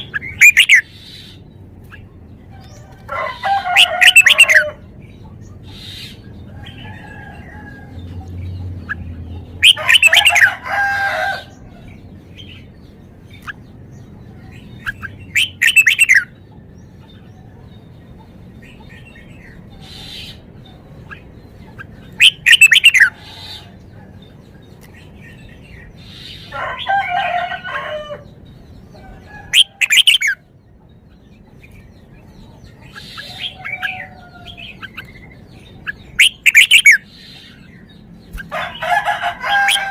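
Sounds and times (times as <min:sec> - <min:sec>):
bird whistled song phrases: 0:00.0 - 0:00.9, 0:14.9 - 0:16.3, 0:22.2 - 0:23.5, 0:36.1 - 0:37.1.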